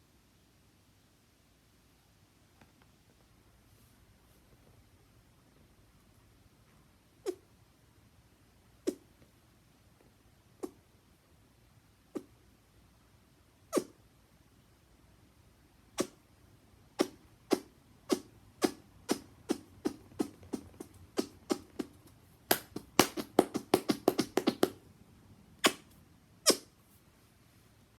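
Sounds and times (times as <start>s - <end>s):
hand pops: 17.0s - 24.8s, 25.6s - 26.6s.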